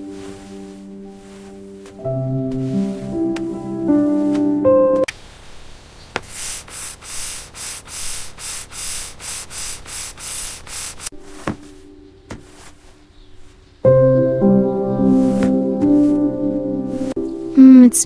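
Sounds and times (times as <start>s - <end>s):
music: 0.0s - 5.1s, 13.9s - 18.0s
rough scraping strokes: 0.0s - 13.8s, 15.0s - 17.2s.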